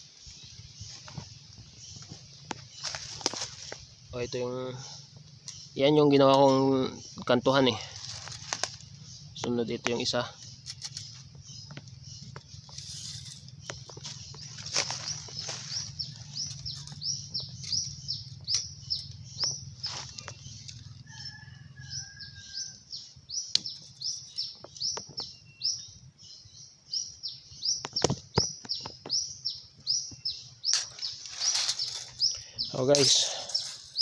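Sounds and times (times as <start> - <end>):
leaves and twigs crackling underfoot: 0.0 - 22.2, 30.1 - 34.0
bird chirping: 0.0 - 34.0.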